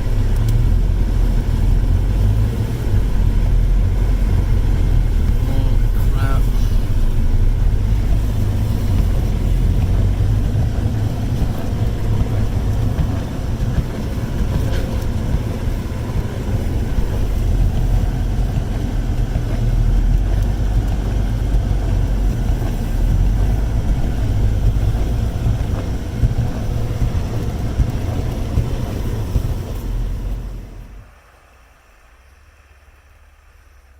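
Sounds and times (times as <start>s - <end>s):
engine low rumble: 0.0s - 33.9s.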